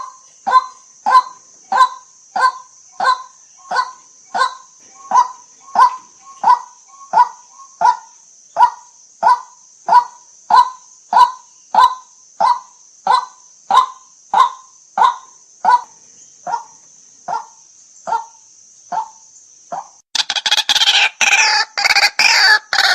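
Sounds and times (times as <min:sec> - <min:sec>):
bird harsh call: 0:00.0 - 0:08.1, 0:19.8 - 0:22.9
steady high hiss: 0:00.0 - 0:22.5.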